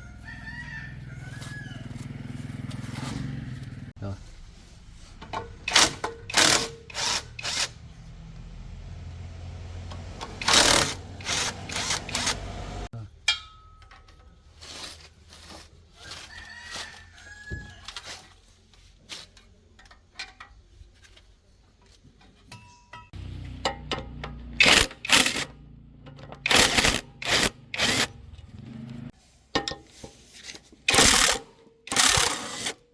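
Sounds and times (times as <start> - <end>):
tools clanking on metal: 29.5 - 30.3.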